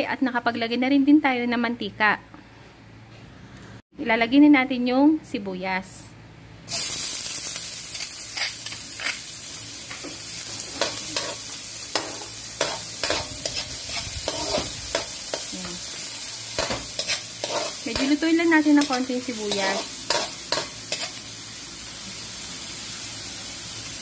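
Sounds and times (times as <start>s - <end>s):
onion sizzling in hot oil: 6.7s - 24.0s
metal spatula scraping a pan: 12.0s - 15.5s, 16.6s - 21.2s.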